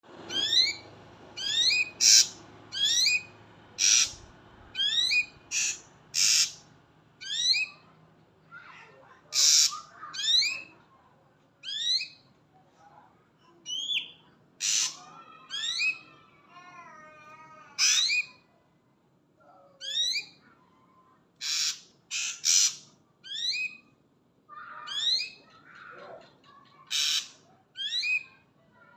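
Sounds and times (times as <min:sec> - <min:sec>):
bird calling with sharp whistles: 0:00.3 - 0:00.8, 0:01.4 - 0:04.2, 0:04.8 - 0:06.6, 0:09.4 - 0:10.7, 0:21.4 - 0:23.8, 0:26.9 - 0:28.3.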